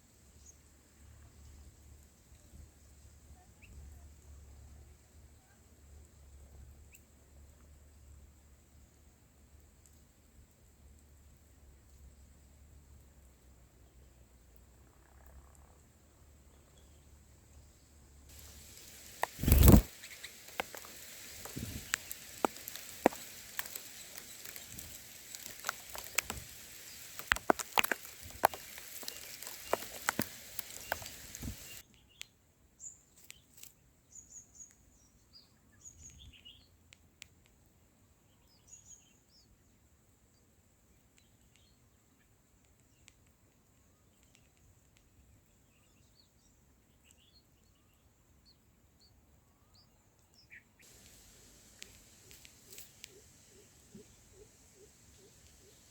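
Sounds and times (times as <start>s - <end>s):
faint bird chirps: 14.8s - 27.2s, 43.8s - 55.9s
steady hiss: 17.6s - 31.8s, 50.8s - 55.9s.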